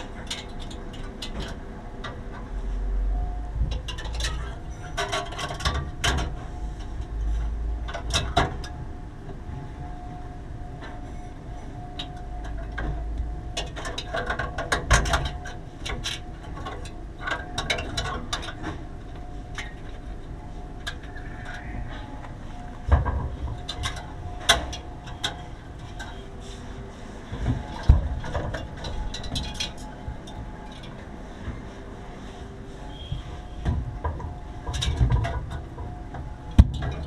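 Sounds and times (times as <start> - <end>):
faint steady hum: 0.0 - 37.0
tools and parts clattering: 3.7 - 7.0, 27.3 - 31.0.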